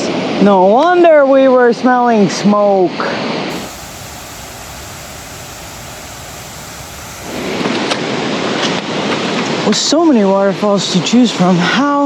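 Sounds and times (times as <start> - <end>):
rushing white water: 3.5 - 7.8.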